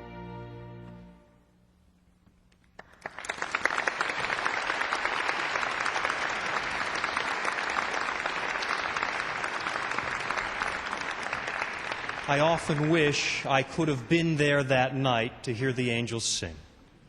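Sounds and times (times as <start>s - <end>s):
audience applauding: 2.8s - 13.5s.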